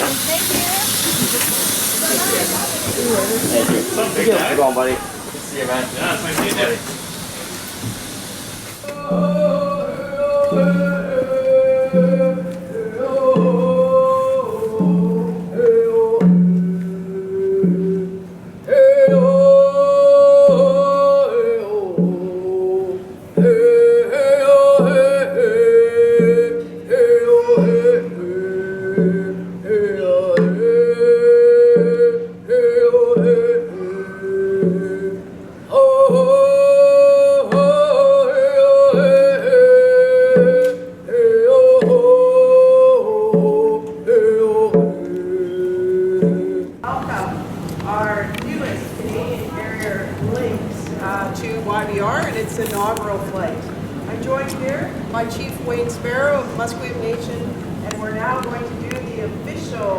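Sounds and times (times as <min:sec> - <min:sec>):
group chanting a song: 0:01.5 - 0:48.0
hand drum beat: 0:08.9 - 0:14.0, 0:21.8 - 0:22.8, 0:23.4 - 0:33.9, 0:43.1 - 0:50.4.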